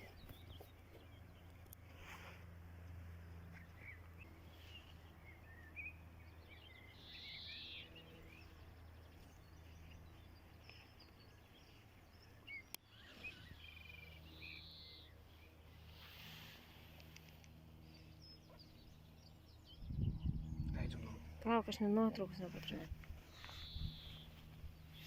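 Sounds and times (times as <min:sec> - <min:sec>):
faint birdsong: 0:00.0 - 0:25.0
low steady hum: 0:00.0 - 0:25.0.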